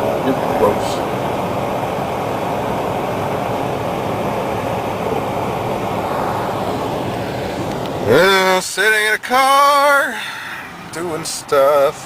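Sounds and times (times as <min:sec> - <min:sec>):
rushing noise inside car cabin: 0:00.0 - 0:12.0.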